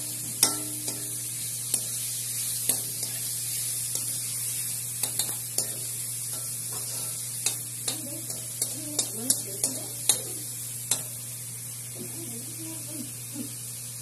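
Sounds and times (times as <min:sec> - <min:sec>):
spatula scraping a wok: 0:00.0 - 0:10.3
meat sizzling in oil: 0:00.0 - 0:14.0.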